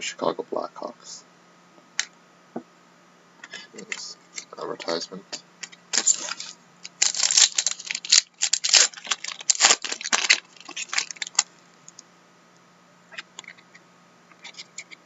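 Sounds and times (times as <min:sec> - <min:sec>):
plastic wrapper crinkling: 0:05.6 - 0:12.0.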